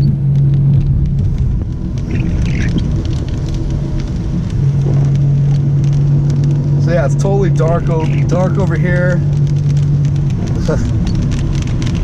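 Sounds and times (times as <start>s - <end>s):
car engine and road drone: 0.0s - 12.0s
raindrops ticking on car: 0.0s - 12.0s.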